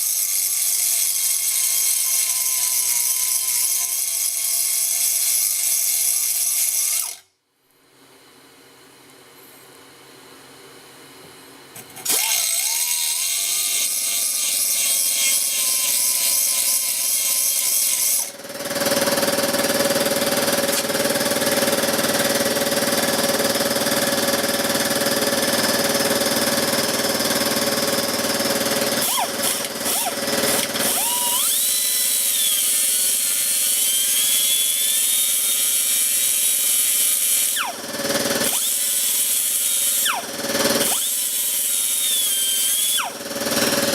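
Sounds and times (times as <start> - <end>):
electric grinder grinding metal: 12.1 - 18.4, 26.6 - 43.9.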